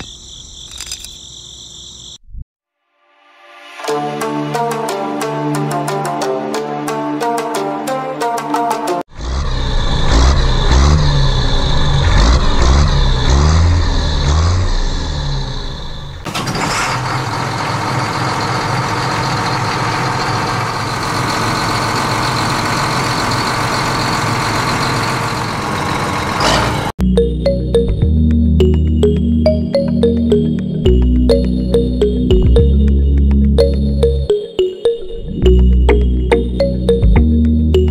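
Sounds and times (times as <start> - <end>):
heavy vehicle engine: 9.1 - 27.0.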